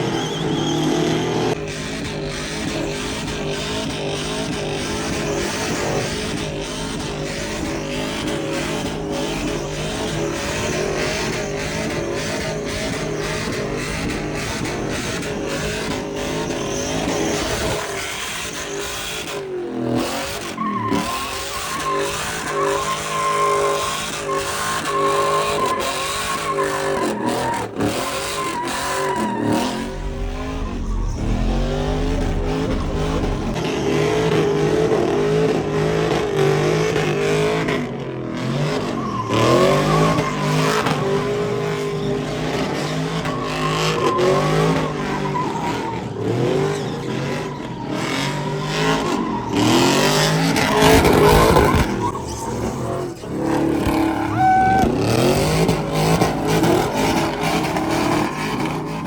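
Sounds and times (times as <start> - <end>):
tyres squealing: 0.0 - 1.6, 20.4 - 34.2, 38.7 - 59.0
car engine revving hard: 0.0 - 59.0.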